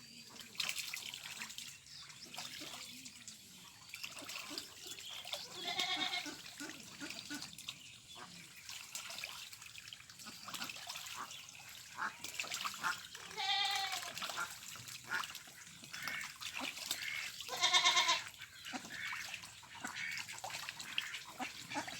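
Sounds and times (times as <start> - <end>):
light splashing in water: 0.4 - 21.9
ducks quacking: 4.2 - 8.5, 10.2 - 21.9.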